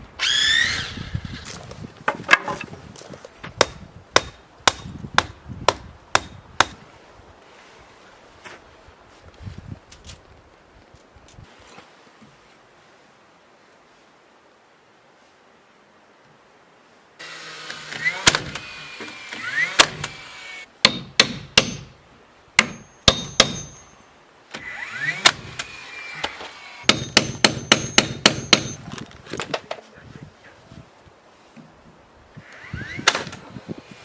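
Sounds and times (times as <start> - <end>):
hammer driving nails into wood: 3.6 - 6.8, 17.7 - 21.9, 22.6 - 23.9, 24.6 - 28.8.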